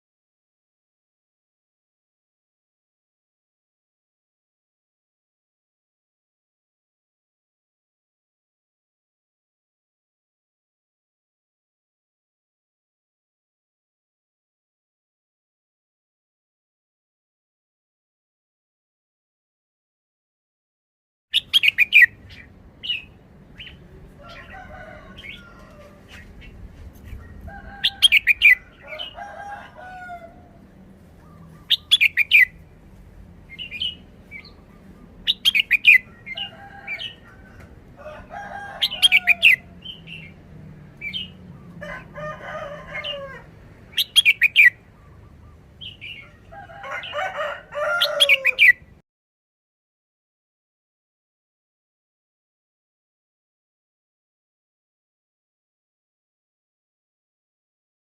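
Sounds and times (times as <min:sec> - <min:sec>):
bird singing bright phrases: 0:21.3 - 0:24.6, 0:25.2 - 0:29.2, 0:31.1 - 0:37.3, 0:38.8 - 0:40.4, 0:41.0 - 0:41.8, 0:43.8 - 0:47.2.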